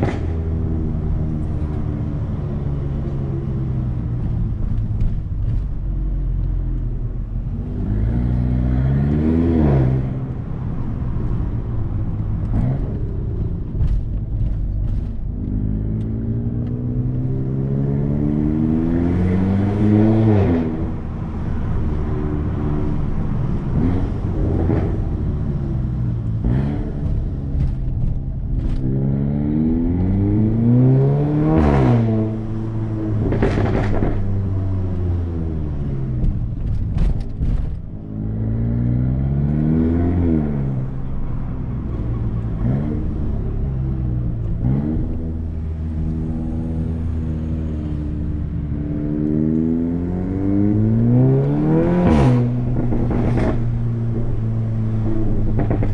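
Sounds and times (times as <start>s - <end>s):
car engine revving: 0.0s - 55.9s
exhaust cracks: 36.1s - 38.1s, 52.0s - 55.9s.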